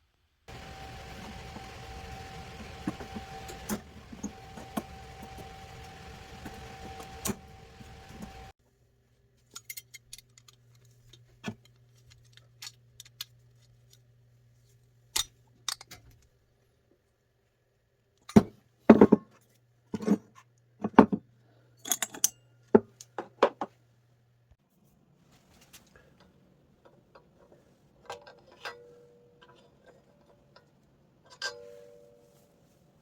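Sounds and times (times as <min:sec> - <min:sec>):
machine hum with whine: 0:00.5 - 0:08.5
quiet low hum: 0:00.5 - 0:15.2
metal clicks and clinks: 0:21.8 - 0:22.4.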